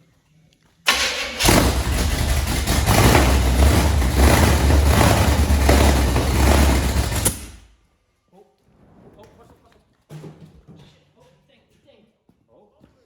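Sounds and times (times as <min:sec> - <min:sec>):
engine running unevenly: 0:00.9 - 0:07.7.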